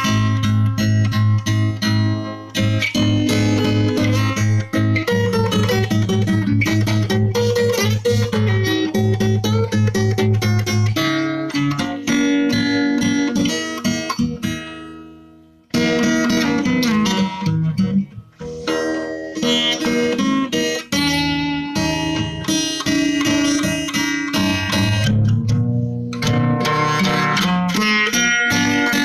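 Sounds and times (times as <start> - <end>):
acoustic guitar plucked notes: 0.0 - 29.0.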